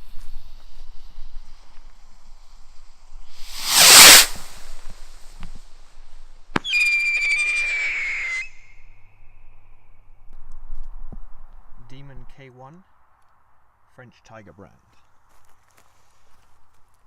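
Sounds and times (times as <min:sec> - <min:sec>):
sharp crack: 0:03.3 - 0:05.6
rocket launching whoosh: 0:03.3 - 0:06.0
high-pitched whistling scream: 0:03.4 - 0:04.4, 0:06.6 - 0:09.4.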